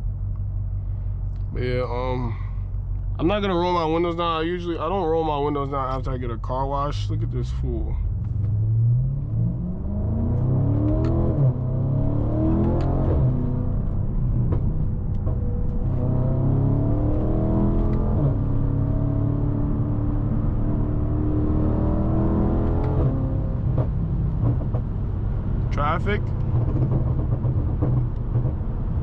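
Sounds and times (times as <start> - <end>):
car engine accelerating: 5.6 - 29.0
gear upshifts: 8.0 - 25.0.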